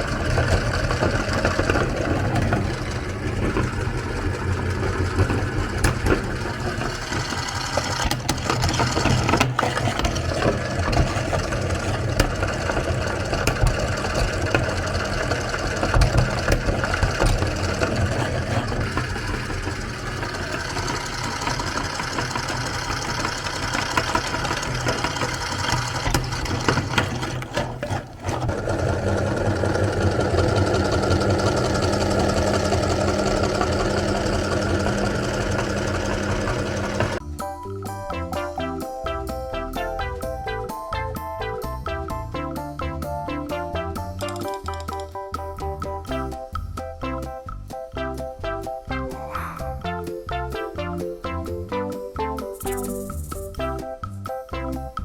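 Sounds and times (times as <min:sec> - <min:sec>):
electric meat grinder motor humming: 0:00.0 - 0:37.2.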